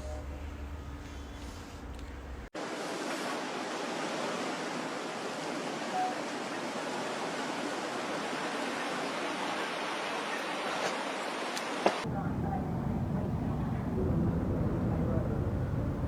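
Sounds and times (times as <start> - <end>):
brief faint tone: 5.9 - 6.2.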